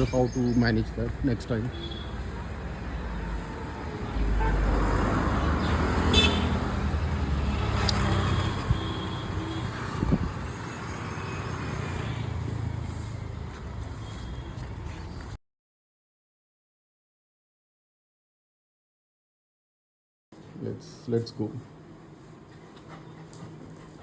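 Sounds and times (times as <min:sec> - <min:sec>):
background traffic: 0:00.0 - 0:15.4, 0:20.4 - 0:24.0
vehicle rumbling: 0:00.0 - 0:15.4.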